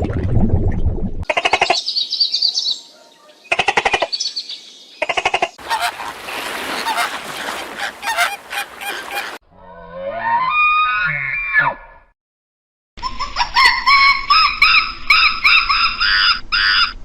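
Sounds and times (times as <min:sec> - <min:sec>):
bird calls: 0:01.3 - 0:09.4.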